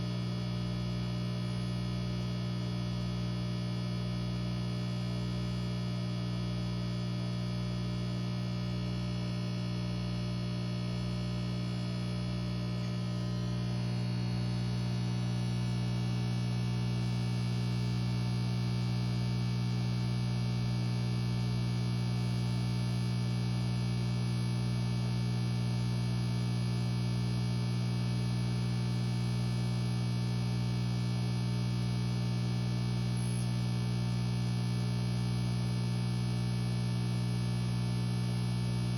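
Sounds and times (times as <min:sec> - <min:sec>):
aquarium air pump humming: 0:08.3 - 0:20.6, 0:31.6 - 0:38.9.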